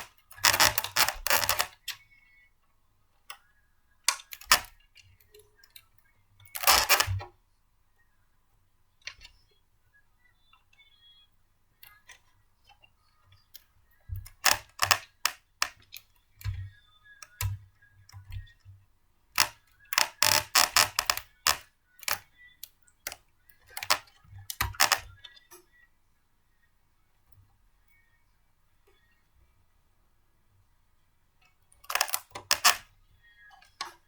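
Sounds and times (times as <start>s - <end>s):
plastic and metal parts clicking: 0.0s - 2.0s, 4.1s - 7.4s, 11.8s - 25.6s, 31.8s - 34.0s.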